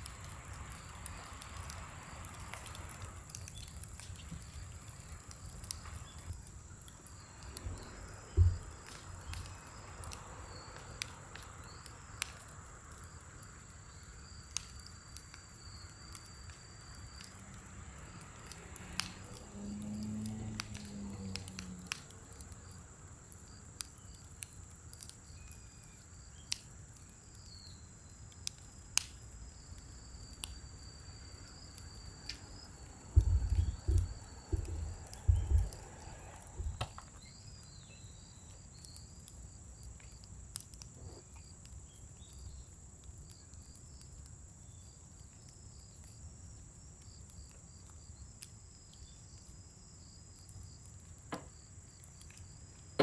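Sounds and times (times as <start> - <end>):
high insect trill: 0.0 - 53.0
wood fire crackling and popping: 0.0 - 53.0
dull low thumps: 7.6 - 8.8, 33.2 - 35.9, 36.6 - 36.9.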